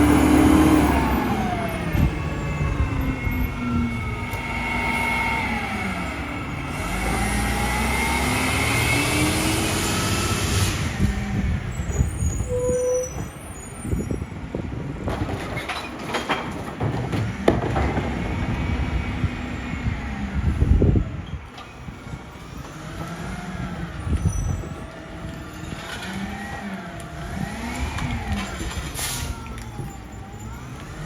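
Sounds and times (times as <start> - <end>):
garbage truck diesel engine running: 0.0 - 12.3
metal clanks and knocks: 15.0 - 18.6.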